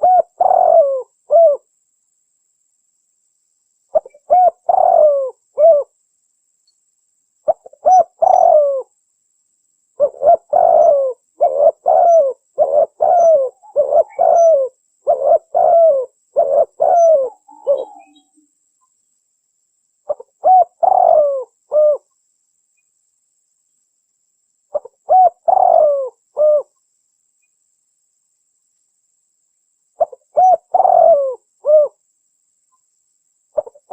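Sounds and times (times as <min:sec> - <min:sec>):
dove cooing: 0:00.0 - 0:01.7, 0:03.9 - 0:05.9, 0:07.5 - 0:08.9, 0:10.0 - 0:18.3, 0:20.1 - 0:22.1, 0:24.7 - 0:26.7, 0:30.0 - 0:32.0, 0:33.6 - 0:33.9.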